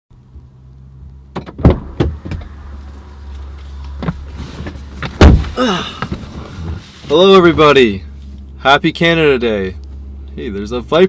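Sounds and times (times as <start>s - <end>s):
low hum inside a car: 0.1s - 11.0s
loud thump: 1.4s - 2.5s, 5.0s - 6.2s.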